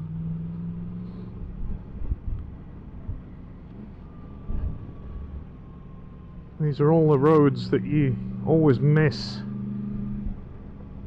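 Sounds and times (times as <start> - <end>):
wind rumble on microphone: 1.3 - 5.6.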